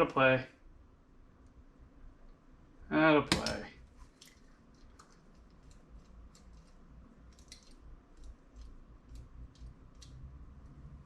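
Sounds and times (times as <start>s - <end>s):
small metal parts clicking and tapping: 4.2s - 10.7s.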